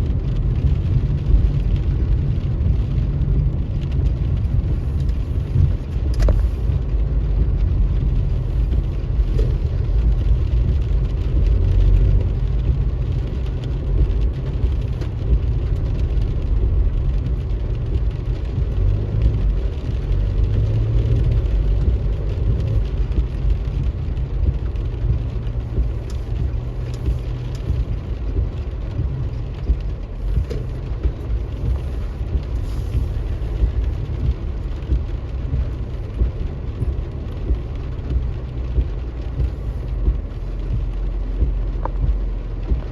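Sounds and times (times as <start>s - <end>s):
car engine and road noise: 0.0s - 42.9s
faint ticks: 8.5s - 42.9s.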